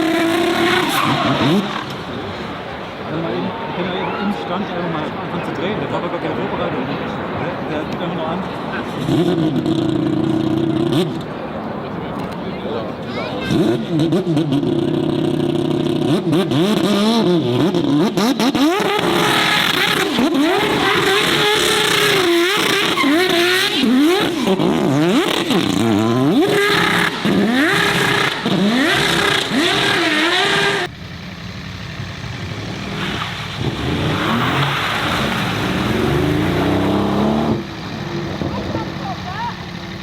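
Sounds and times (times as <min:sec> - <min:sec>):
car engine revving: 0:00.0 - 0:12.4, 0:13.1 - 0:40.0.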